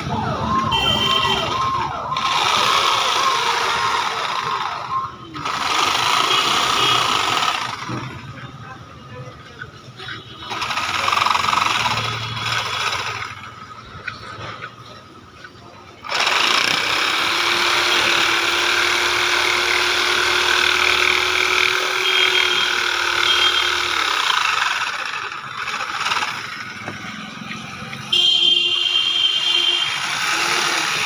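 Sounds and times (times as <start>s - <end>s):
electric jigsaw cutting wood: 2.2s - 8.1s, 10.5s - 13.4s, 16.0s - 27.0s, 29.9s - 31.0s.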